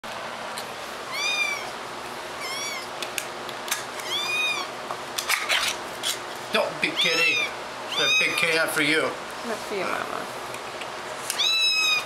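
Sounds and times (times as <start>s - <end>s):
kitten mewing: 1.1s - 1.8s, 2.4s - 2.9s, 4.0s - 4.7s, 6.8s - 8.6s, 11.3s - 12.0s.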